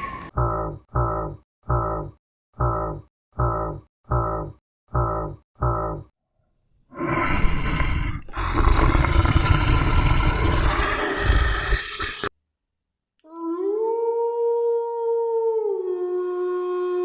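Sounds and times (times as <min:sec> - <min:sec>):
large animal roaring: 0:06.9 - 0:12.3.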